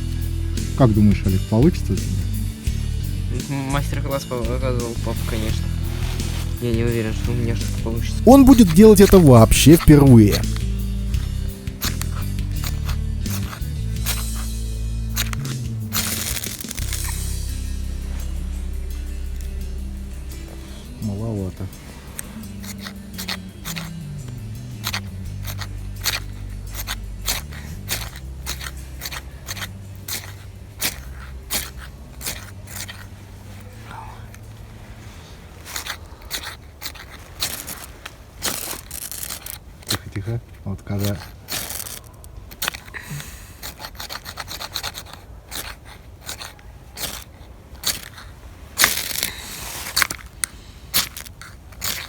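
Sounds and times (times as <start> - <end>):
fire-starter rod scraped with striker: 5.2 - 17.6, 21.7 - 33.7, 35.6 - 40.3, 40.9 - 52.0.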